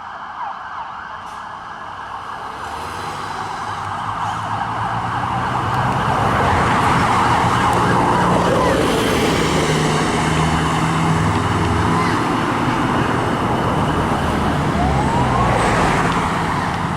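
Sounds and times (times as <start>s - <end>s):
emergency vehicle sirens: 0.0s - 16.9s
traffic: 0.0s - 16.9s
heavy engine rumble: 7.1s - 16.9s.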